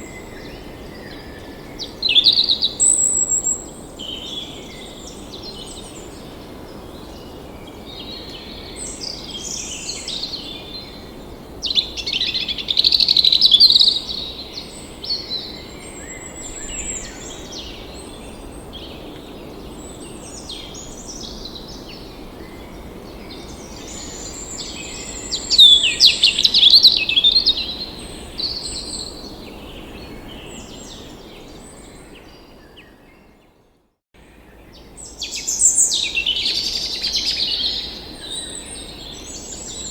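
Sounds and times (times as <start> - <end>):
wild birds singing and chirping: 0.0 - 33.6, 34.2 - 39.9.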